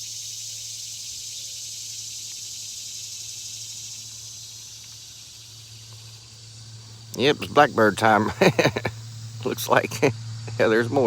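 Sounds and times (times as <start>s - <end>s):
faint low hum: 5.2s - 11.0s.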